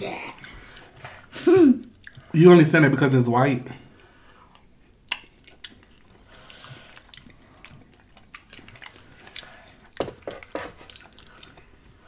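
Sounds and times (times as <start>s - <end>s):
wet chewing mouth sounds: 0.4s - 2.3s, 4.4s - 11.9s.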